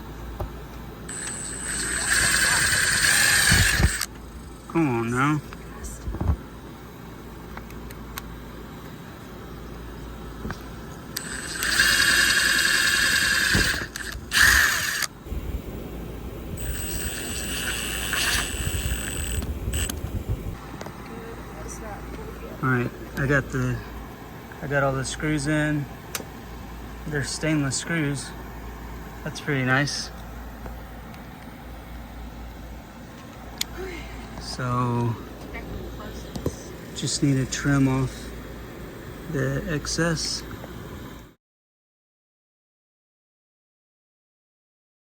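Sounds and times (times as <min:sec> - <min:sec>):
steady low hum: 0:00.0 - 0:41.4
power drill motor whining: 0:01.1 - 0:04.3, 0:11.1 - 0:15.2, 0:16.6 - 0:20.6.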